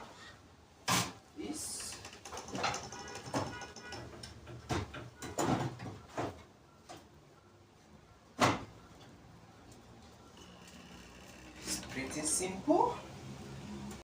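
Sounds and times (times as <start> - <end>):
metal parts knocking: 1.9 - 5.7.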